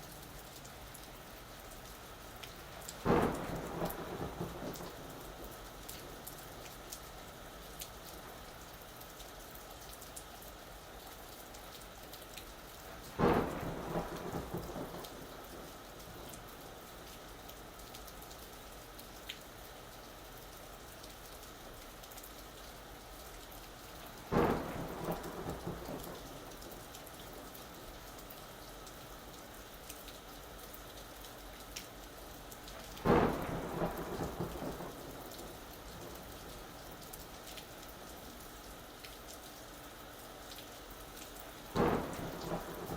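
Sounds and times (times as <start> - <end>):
steady rain falling: 0.0 - 42.9
thunder claps rumbling: 3.0 - 6.6, 13.2 - 16.3, 24.3 - 27.0, 32.9 - 37.4, 41.7 - 42.9.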